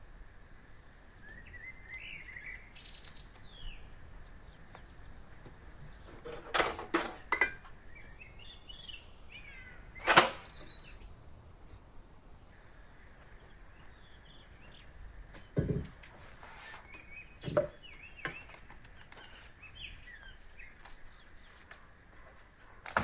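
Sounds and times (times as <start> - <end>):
small birds chirping: 0.0 - 23.0
camping gear knocks and clatters: 4.7 - 8.1, 14.7 - 19.9, 22.8 - 23.0.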